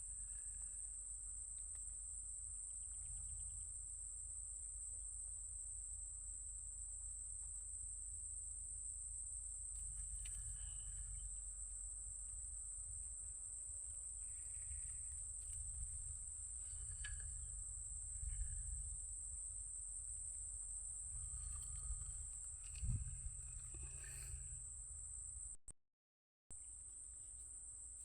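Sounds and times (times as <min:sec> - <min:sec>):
crickets droning: 0:00.0 - 0:25.6, 0:26.6 - 0:28.0
low rumble: 0:09.1 - 0:25.6.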